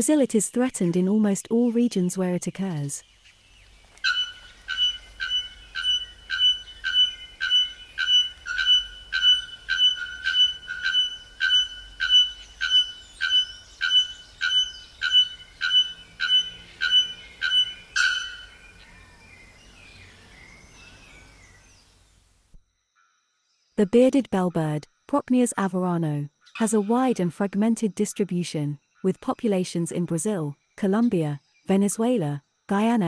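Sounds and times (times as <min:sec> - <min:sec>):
forest background: 0:00.0 - 0:33.0
bellbird calling: 0:04.0 - 0:21.6.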